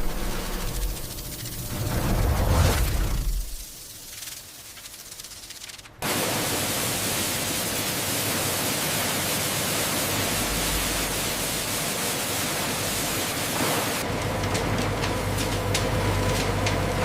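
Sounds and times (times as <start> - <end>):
low hum: 0.0 - 4.2
rushing hiss: 0.0 - 14.0.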